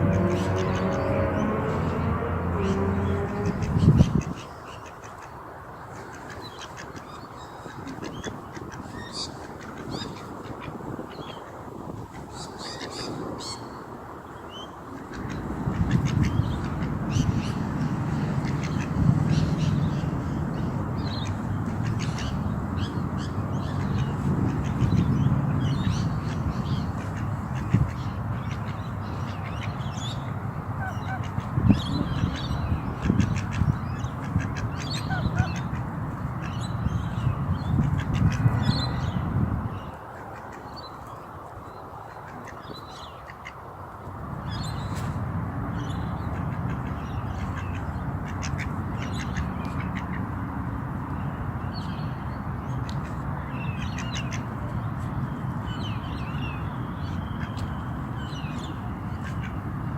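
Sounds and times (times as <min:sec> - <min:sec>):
ducks quacking: 0:00.0 - 0:05.3, 0:30.8 - 0:36.6, 0:46.3 - 0:50.3.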